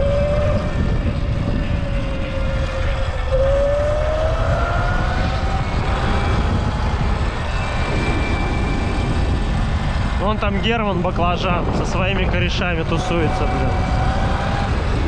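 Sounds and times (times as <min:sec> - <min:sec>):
electric motor whine: 0:00.0 - 0:10.2
wind buffeting microphone: 0:00.0 - 0:15.0.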